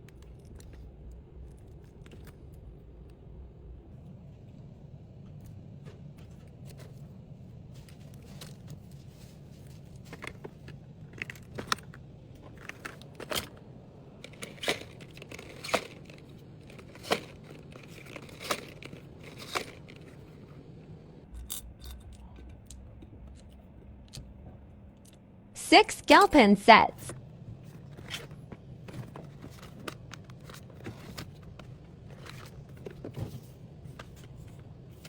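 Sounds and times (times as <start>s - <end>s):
steady low hum: 0.0s - 35.0s
rustling: 14.2s - 20.7s.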